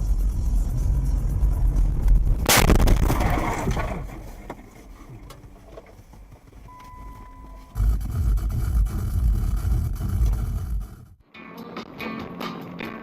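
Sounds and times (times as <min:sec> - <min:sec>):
car road rumble: 0:00.0 - 0:11.2
collision crash: 0:01.4 - 0:05.9
short steady beep: 0:06.7 - 0:07.8.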